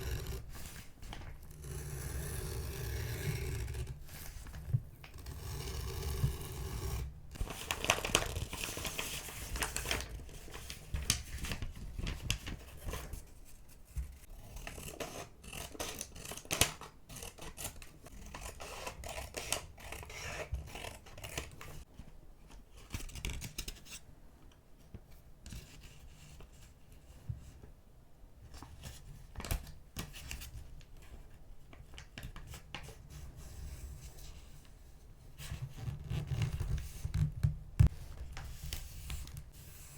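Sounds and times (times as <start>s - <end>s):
paper rustling: 7.4s - 13.4s
scissors snipping paper: 14.6s - 21.8s.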